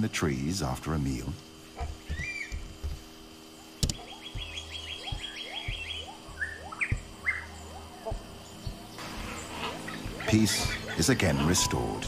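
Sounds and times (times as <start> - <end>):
birds chirping and calling: 1.6 - 12.0
sharp click: 3.8 - 4.0.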